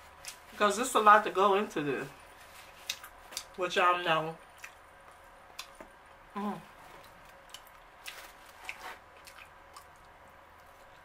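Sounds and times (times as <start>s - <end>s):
chewing and mouth noises: 2.7s - 3.6s, 4.5s - 5.9s, 6.7s - 11.0s.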